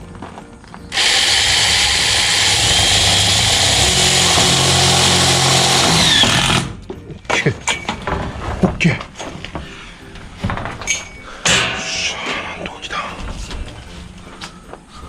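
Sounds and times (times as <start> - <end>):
power tool running harshly: 0.9 - 6.8.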